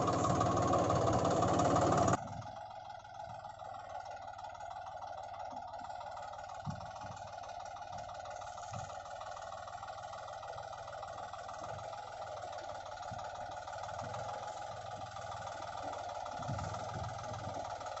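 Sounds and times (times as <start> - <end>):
toy tractor running: 0.0 - 2.2.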